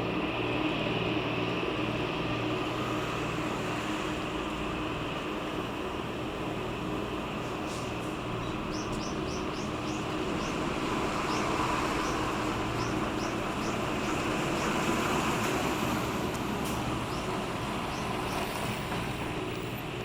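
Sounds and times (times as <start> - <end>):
tug engine droning: 0.0 - 20.0
small bird chirping: 8.4 - 10.6, 11.3 - 14.1.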